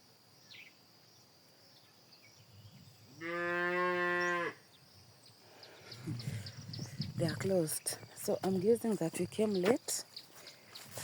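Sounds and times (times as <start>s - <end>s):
faint insects chirring: 0.0s - 11.0s
cow mooing: 3.2s - 4.6s.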